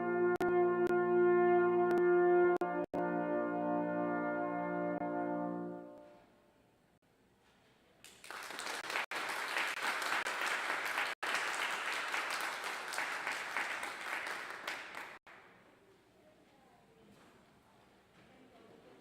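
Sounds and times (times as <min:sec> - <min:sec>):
congregation applauding: 0:08.0 - 0:15.3.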